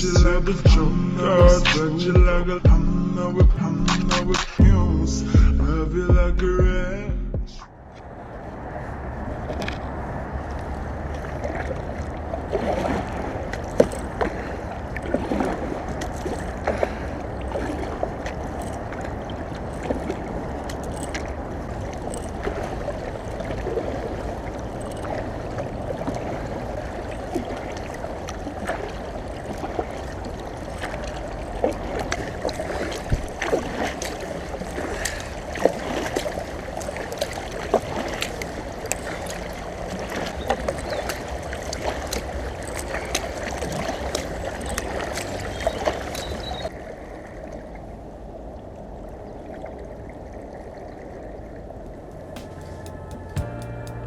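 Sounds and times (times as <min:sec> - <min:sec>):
wind rumble on microphone: 0:04.6 - 0:44.2
water sloshing around boat hull: 0:07.9 - 0:47.8
small splashes and knocks: 0:11.1 - 0:25.3, 0:27.1 - 0:46.3.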